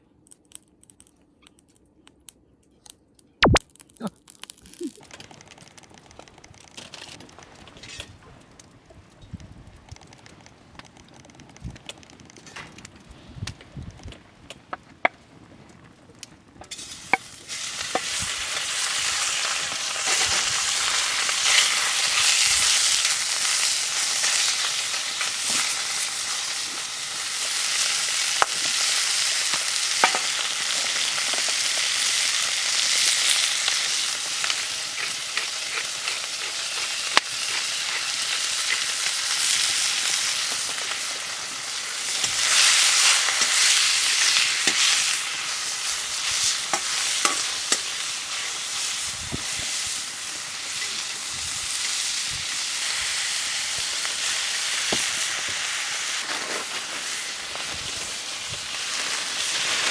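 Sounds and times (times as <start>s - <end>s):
stirring clicks: 3.5s - 17.3s
food sizzling in pan: 16.6s - 59.9s.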